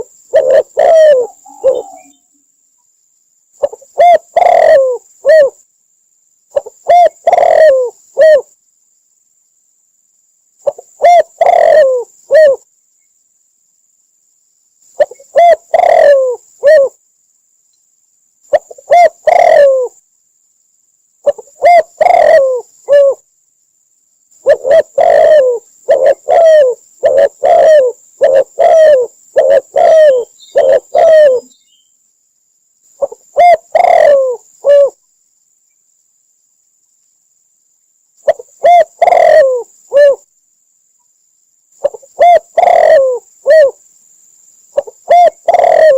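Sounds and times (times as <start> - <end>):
dove cooing: 0.0 - 2.3, 3.6 - 5.6, 6.5 - 8.5, 10.6 - 12.6, 15.0 - 17.0, 18.5 - 20.0, 21.2 - 23.2, 24.4 - 31.6, 33.0 - 35.0, 38.2 - 40.3, 41.8 - 43.8, 44.7 - 45.9.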